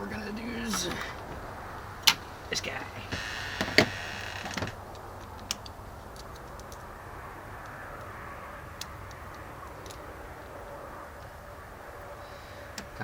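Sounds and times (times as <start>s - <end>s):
faint steady background noise: 0.0s - 13.0s.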